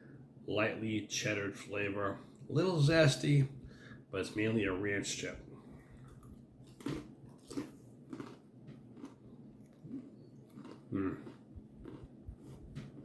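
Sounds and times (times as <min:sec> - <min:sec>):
person chewing crunchy crackers: 0:06.0 - 0:13.0.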